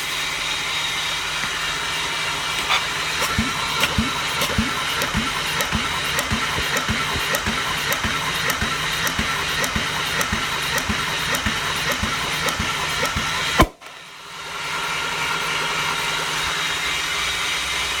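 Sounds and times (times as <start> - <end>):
engine turning over: 0.0 - 18.0
steady mechanical hum: 0.0 - 18.0
sharp click: 3.2 - 14.0.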